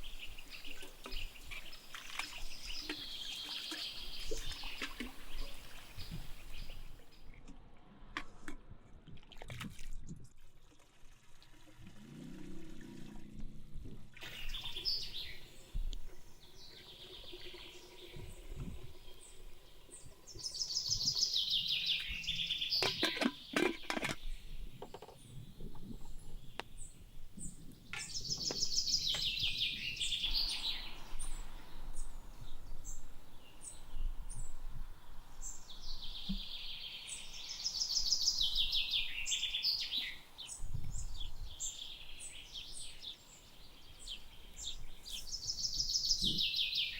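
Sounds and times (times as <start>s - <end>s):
songbirds trilling: 0.0s - 7.3s, 14.2s - 46.9s.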